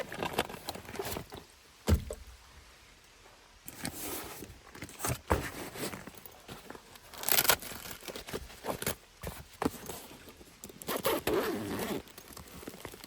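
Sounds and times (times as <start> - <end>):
scraping rustle: 3.6 - 13.0.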